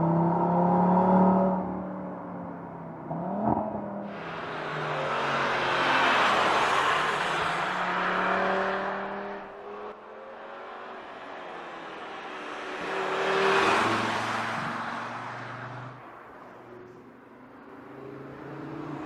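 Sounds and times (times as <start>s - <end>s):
car pass-by exhaust and tyres: 0.4s - 19.0s
car engine revving: 3.1s - 15.7s.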